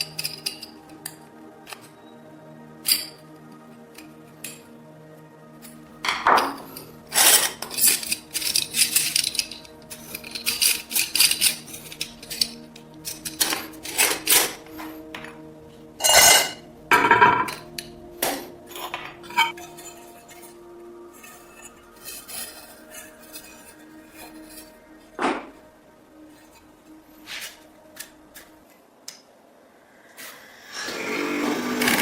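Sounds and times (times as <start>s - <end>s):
scraping and clinking on metal: 0.0s - 2.0s, 5.6s - 28.5s
soft background music: 0.0s - 32.0s.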